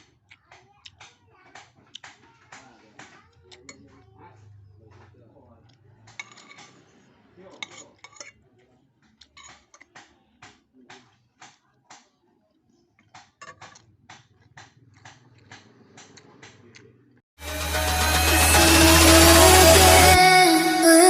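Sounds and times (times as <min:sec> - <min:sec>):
cutlery clinking against a bowl: 0:05.0 - 0:08.4, 0:09.1 - 0:12.1.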